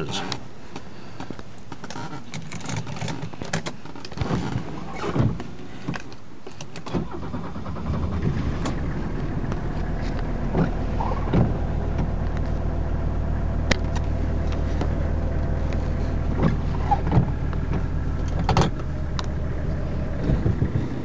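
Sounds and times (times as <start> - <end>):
diesel engine idling: 7.1 - 21.0.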